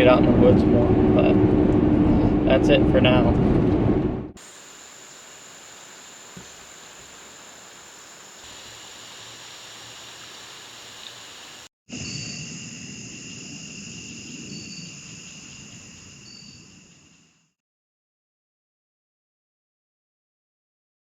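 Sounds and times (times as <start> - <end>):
insects trilling: 4.4 - 17.5.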